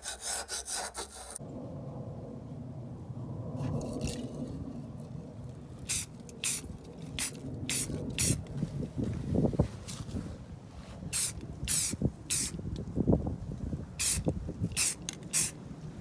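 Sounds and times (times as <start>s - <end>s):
steady low rumble: 1.4s - 16.0s
short hissing bursts: 5.9s - 6.6s, 7.2s - 8.4s, 11.2s - 12.6s, 14.0s - 15.6s.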